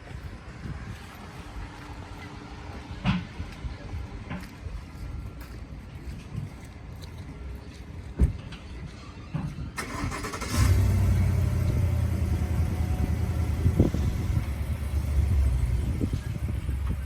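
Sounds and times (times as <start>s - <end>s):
car engine running: 10.6s - 17.0s.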